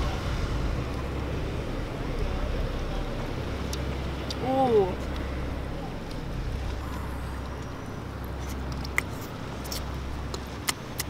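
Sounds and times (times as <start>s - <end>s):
low background rumble: 0.0s - 11.0s
chewing clicks and smacks: 8.3s - 11.0s.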